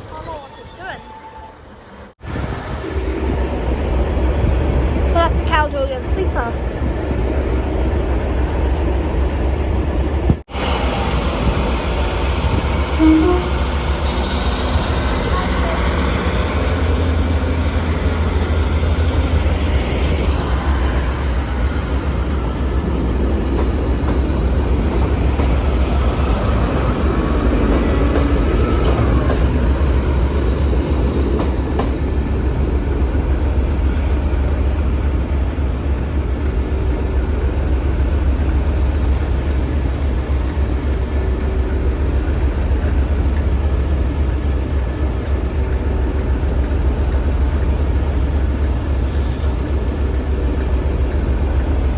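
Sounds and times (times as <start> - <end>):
diesel train rumbling: 0.0 - 51.9.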